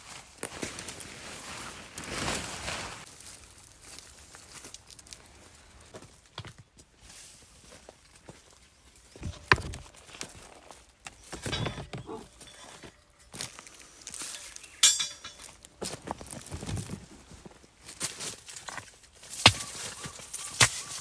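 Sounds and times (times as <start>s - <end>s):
hard objects clinking and knocking: 11.3s - 13.4s, 14.3s - 15.6s, 19.3s - 21.0s.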